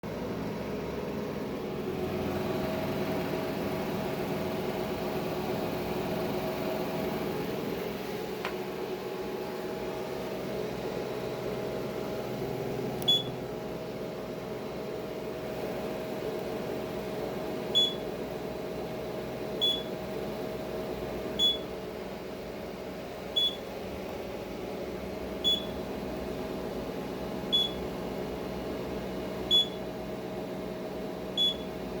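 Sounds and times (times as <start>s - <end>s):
machine hum: 0.0s - 32.0s
short high beeps: 13.1s - 13.3s, 17.8s - 18.0s, 19.6s - 19.9s, 21.4s - 21.6s, 23.4s - 23.6s, 25.5s - 25.7s, 27.6s - 27.8s, 31.4s - 31.6s.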